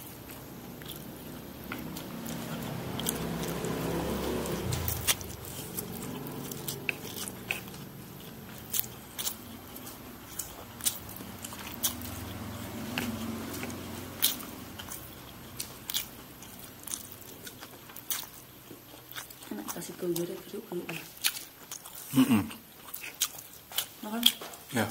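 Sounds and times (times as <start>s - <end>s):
man chewing: 0.0s - 24.9s.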